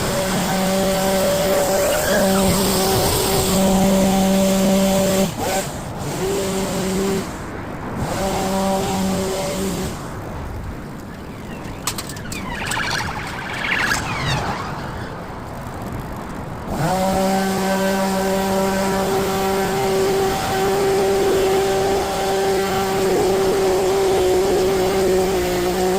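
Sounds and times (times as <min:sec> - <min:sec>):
brief high gliding sounds: 0:11.5 - 0:15.2.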